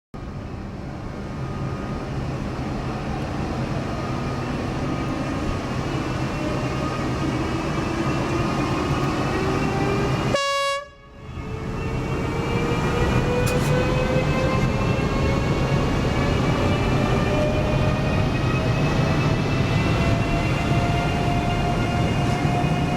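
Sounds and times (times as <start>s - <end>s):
electric locomotive rumbling and whining: 0.2s - 22.9s
train horn blast: 10.3s - 11.2s.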